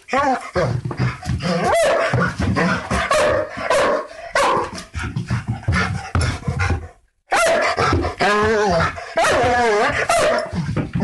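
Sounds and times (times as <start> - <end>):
dog barking aggressively: 1.6 - 4.8, 7.3 - 8.2, 9.2 - 10.6.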